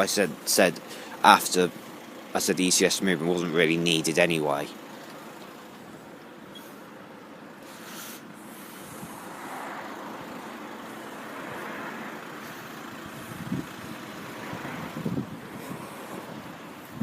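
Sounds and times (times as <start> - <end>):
motor vehicle passing: 3.7 - 17.0
wind gusts on microphone: 13.1 - 17.0.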